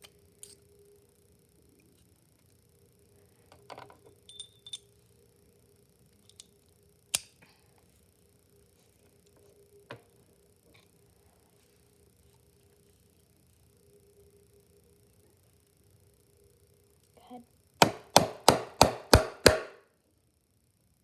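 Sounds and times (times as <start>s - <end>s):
hammer striking hole punch: 17.8s - 19.8s.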